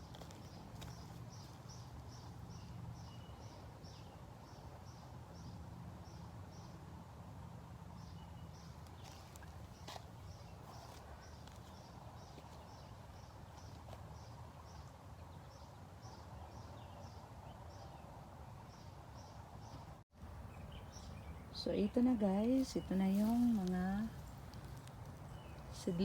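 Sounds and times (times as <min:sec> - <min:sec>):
low background rumble: 0:20.2 - 0:26.0.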